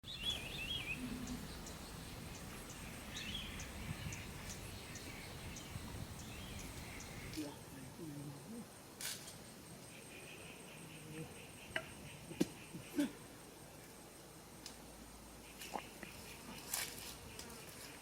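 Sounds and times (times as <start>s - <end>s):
bird warbling calls: 0.1s - 7.5s
faint insect ticks: 1.0s - 7.5s.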